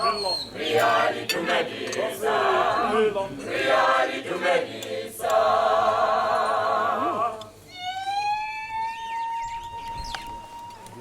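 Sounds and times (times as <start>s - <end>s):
group of voices singing: 0.5s - 7.6s.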